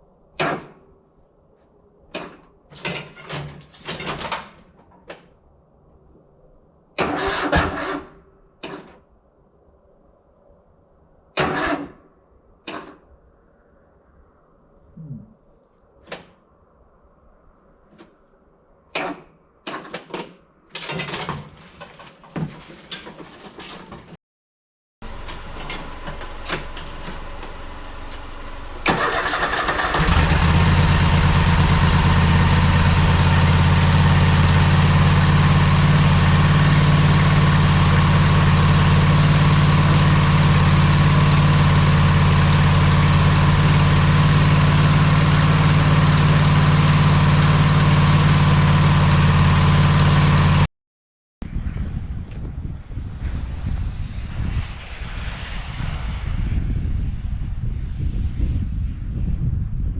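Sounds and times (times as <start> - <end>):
lawn tractor engine cranking and running: 7.0 - 8.2, 11.4 - 11.9, 25.0 - 50.6.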